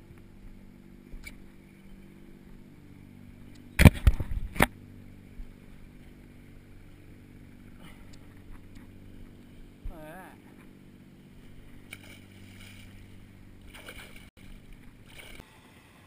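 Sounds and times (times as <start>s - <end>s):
boat motor idling: 0.0s - 15.4s.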